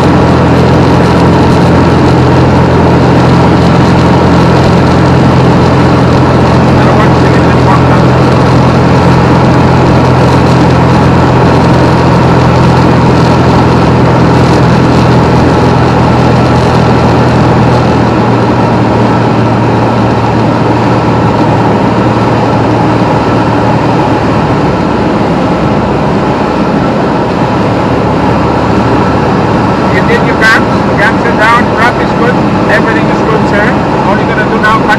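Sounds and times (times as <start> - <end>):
aircraft engine and propeller droning: 0.0 - 34.9.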